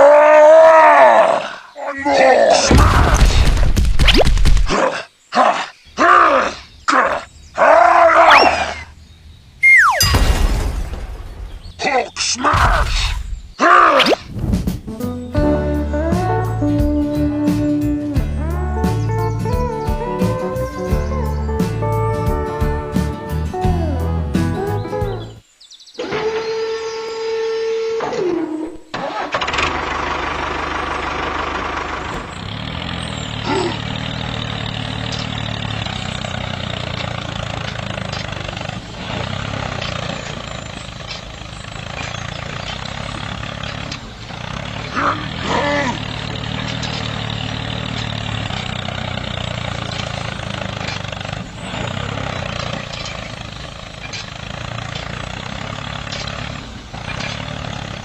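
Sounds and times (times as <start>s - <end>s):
mini tractor engine droning: 26.1s - 58.0s.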